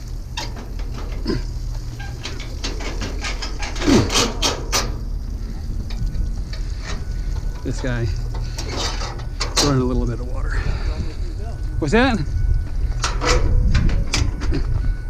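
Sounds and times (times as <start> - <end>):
scrap steel clanking: 0.0 - 10.2
low steady hum: 0.0 - 15.0
short squeaks: 0.3 - 5.0.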